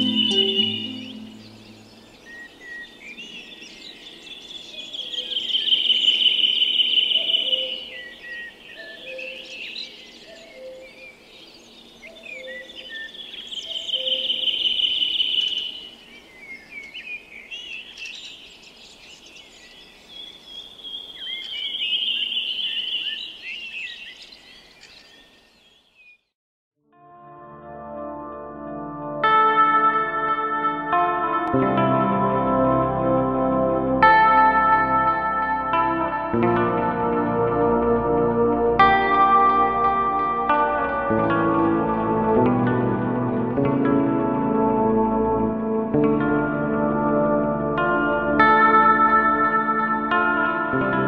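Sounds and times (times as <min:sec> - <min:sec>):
high bird trill: 0:00.0 - 0:11.0, 0:11.8 - 0:18.5
bird chirps: 0:00.0 - 0:26.3.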